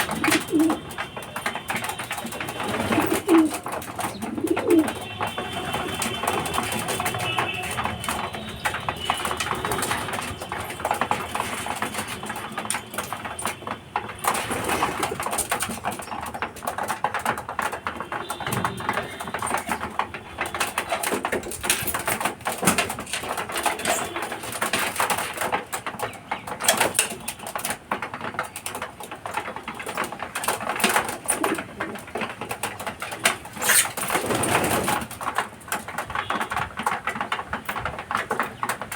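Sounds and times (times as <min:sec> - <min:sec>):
pigeons cooing: 0:00.0 - 0:01.0, 0:01.7 - 0:13.6, 0:30.8 - 0:35.1.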